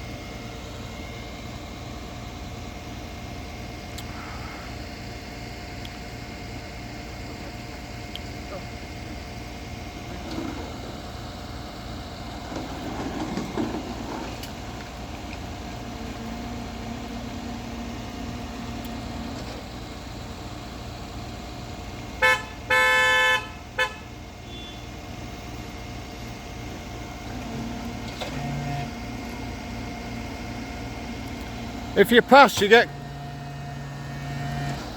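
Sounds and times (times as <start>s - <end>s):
idling vehicle engine hum: 0.0s - 34.9s
car horn honking: 22.2s - 24.9s.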